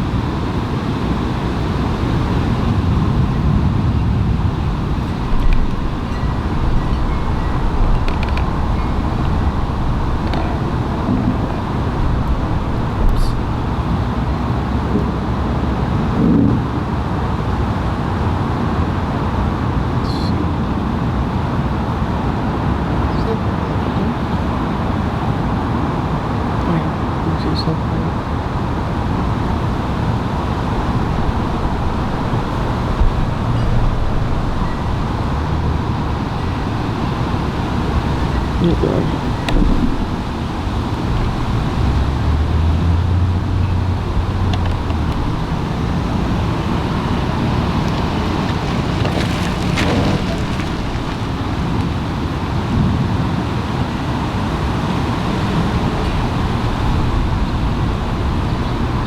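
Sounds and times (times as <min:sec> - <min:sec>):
wind buffeting microphone: 0:00.0 - 0:59.0
loud low rumbling: 0:01.1 - 0:17.1, 0:28.1 - 0:51.7.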